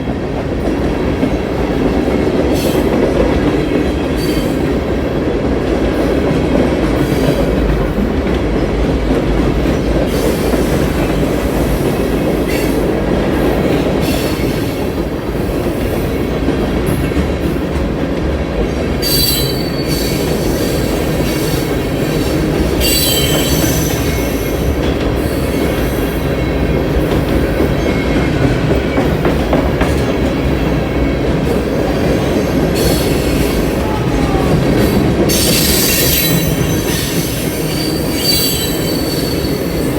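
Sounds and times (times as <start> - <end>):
freight train wheels rumbling: 0.0 - 39.9
high wheel squeals: 22.8 - 24.3, 34.8 - 39.9.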